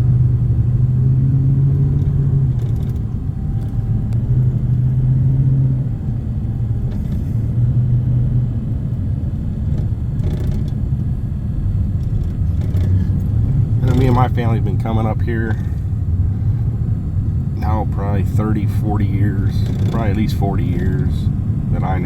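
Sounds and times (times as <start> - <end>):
low rumble: 0.0 - 22.0.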